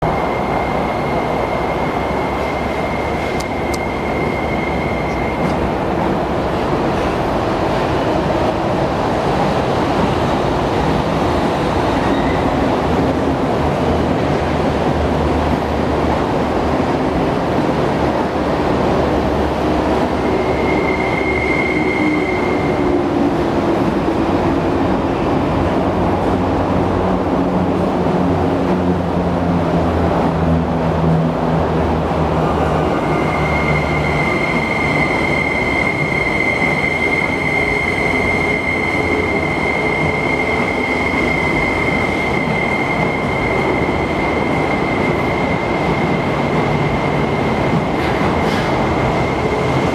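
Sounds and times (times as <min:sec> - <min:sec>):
train rumble: 0:00.0 - 0:49.9
high wheel squeal: 0:00.1 - 0:05.7, 0:20.0 - 0:23.1, 0:32.6 - 0:49.9.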